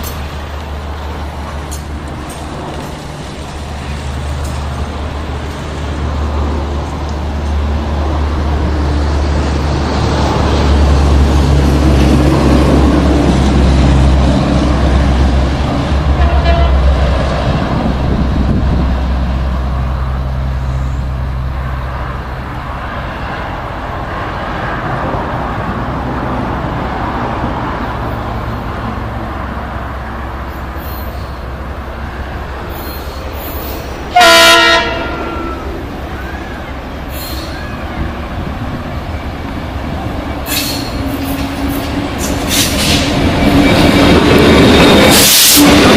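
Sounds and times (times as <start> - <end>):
diesel locomotive engine droning: 0.0 - 45.9
train rolling: 0.0 - 45.9
train horn blast: 16.0 - 17.0, 34.1 - 35.8.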